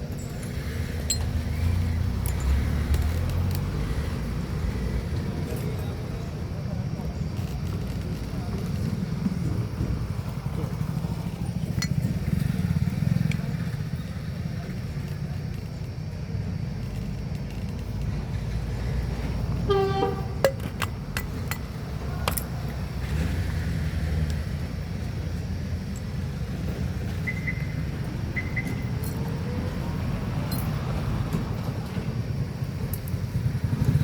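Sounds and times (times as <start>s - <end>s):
horn toot: 19.7s - 20.5s.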